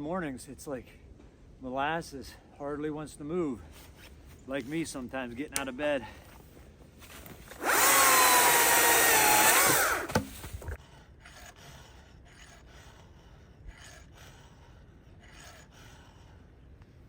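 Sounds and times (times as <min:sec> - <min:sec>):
electric chainsaw motor whine: 0:07.5 - 0:10.8.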